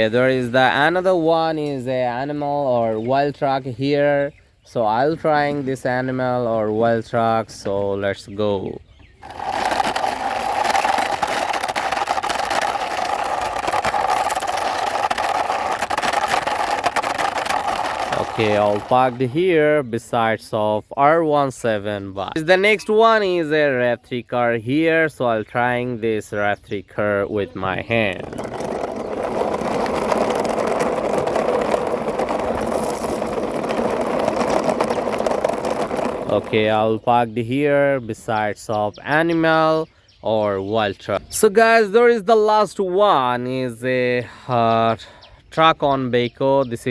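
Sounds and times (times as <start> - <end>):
toy truck wheels whirring: 9.2 - 19.2, 27.9 - 36.8.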